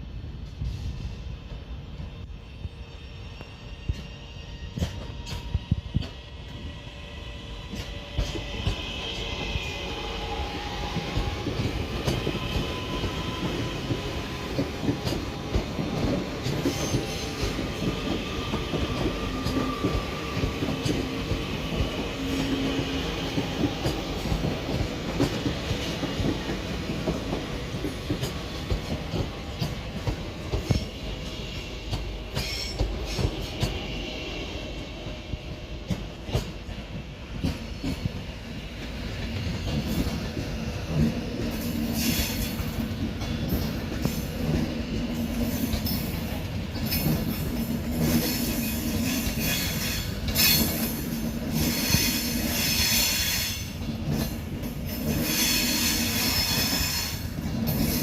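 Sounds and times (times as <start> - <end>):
train rumble: 0.0 - 58.0
train wheels clicking over rail joints: 10.8 - 33.9, 35.3 - 58.0.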